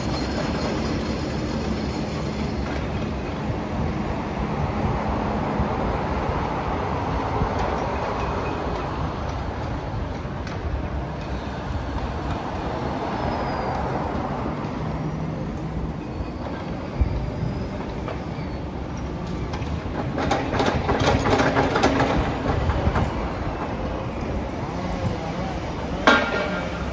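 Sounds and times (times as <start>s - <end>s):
rattling clatter: 19.6s - 23.2s.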